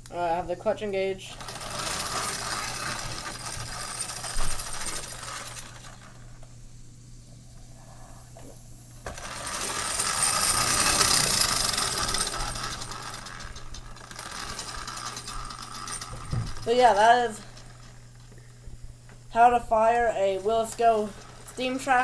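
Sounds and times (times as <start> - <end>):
steam engine clattering: 1.2 - 6.3, 9.0 - 18.5, 19.3 - 22.0.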